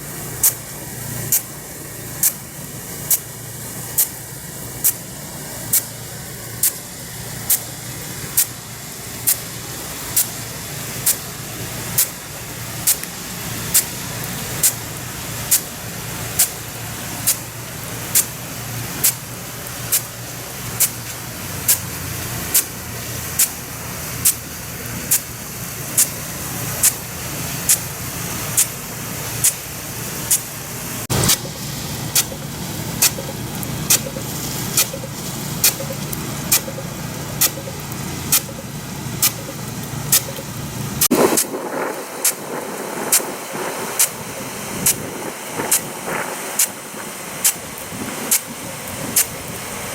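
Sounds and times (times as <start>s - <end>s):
hiss of spray: 0.0s - 49.9s
sprinkler drive arm snapping: 37.4s - 40.5s.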